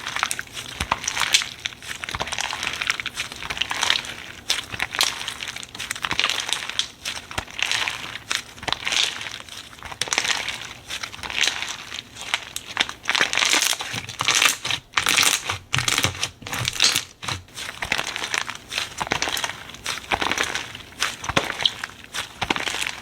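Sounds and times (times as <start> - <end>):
slime crackling and popping: 0.0 - 23.0.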